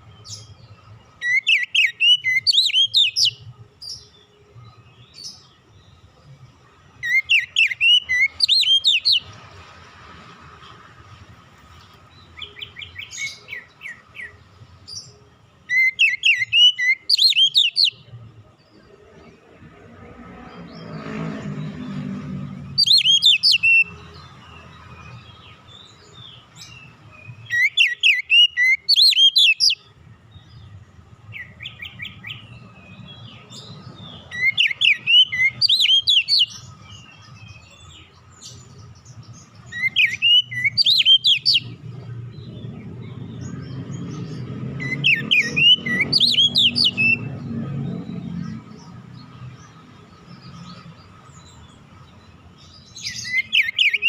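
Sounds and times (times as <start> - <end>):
bird singing whistled phrases: 1.2 - 3.4, 7.0 - 9.3, 15.7 - 18.0, 22.8 - 24.0, 26.7 - 29.8, 34.3 - 36.7, 39.7 - 41.8, 44.8 - 47.3, 53.0 - 54.0.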